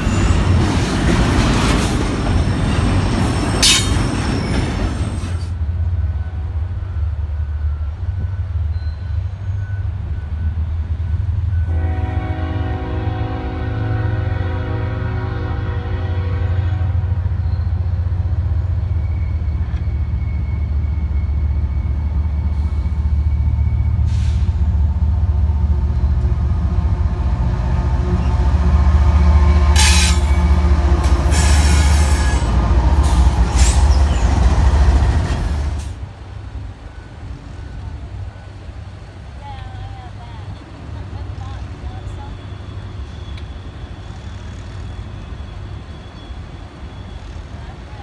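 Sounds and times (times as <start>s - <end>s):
rail clatter: 0.0s - 5.6s
train wheel squeal: 0.0s - 11.8s, 16.5s - 24.7s, 28.0s - 36.0s, 41.9s - 48.0s
diesel locomotive rumble: 0.0s - 48.0s
locomotive horn: 11.5s - 17.2s, 27.2s - 34.0s.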